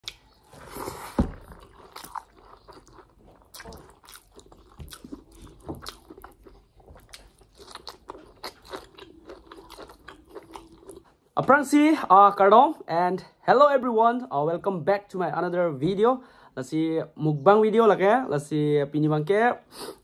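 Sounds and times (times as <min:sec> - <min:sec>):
person chewing with lip smacks: 0:00.0 - 0:11.1.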